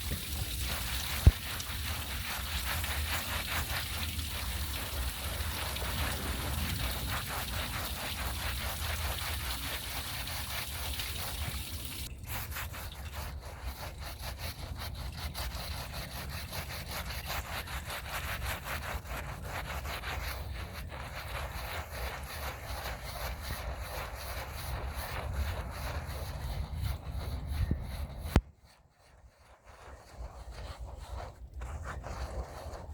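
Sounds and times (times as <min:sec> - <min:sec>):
steady low rumble: 0:00.0 - 0:09.3
hiss: 0:00.0 - 0:12.6
scrub brush on wet rug: 0:00.0 - 0:32.9.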